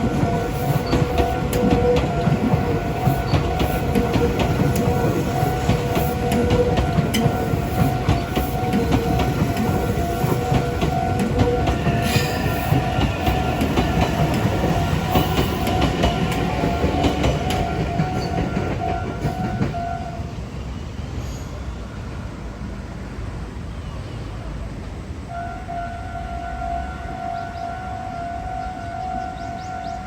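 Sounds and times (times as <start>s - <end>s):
train wheels clattering over rail joints: 0.0s - 20.0s
level crossing warning bell: 0.0s - 20.2s.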